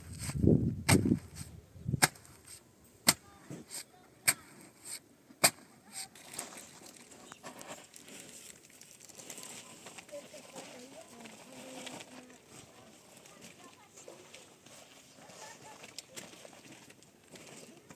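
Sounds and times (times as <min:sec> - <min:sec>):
scraping and rustling: 0:00.0 - 0:17.9.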